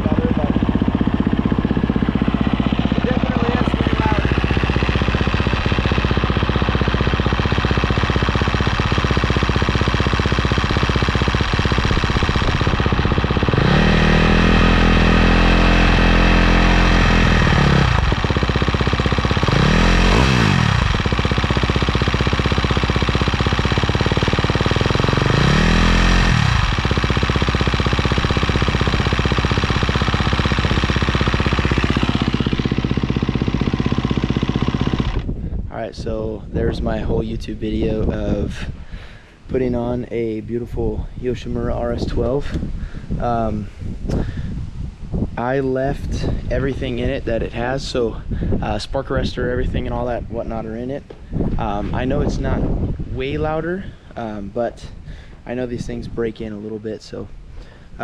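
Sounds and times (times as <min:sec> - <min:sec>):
motorcycle engine idling and revving: 0:00.0 - 0:58.0.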